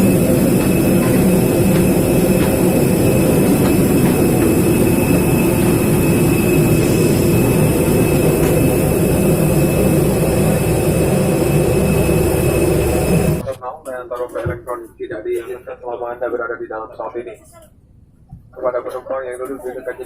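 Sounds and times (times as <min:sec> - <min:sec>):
faint high whine: 0:00.0 - 0:13.4
jet engine and ventilation rumble: 0:00.0 - 0:13.5.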